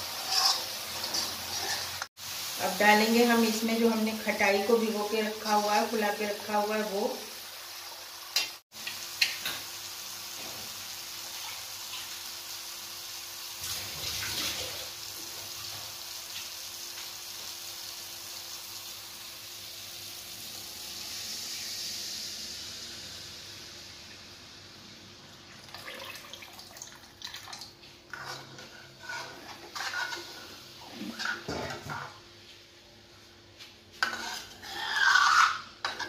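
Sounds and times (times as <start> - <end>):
paste sizzling in hot oil: 0.0 - 3.9, 14.8 - 24.9, 28.1 - 31.9, 34.0 - 36.0.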